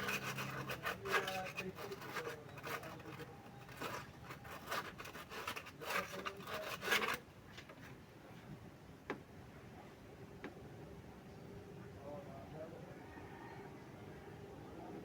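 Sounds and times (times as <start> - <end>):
rubbing and scraping strokes: 0.0 - 7.9.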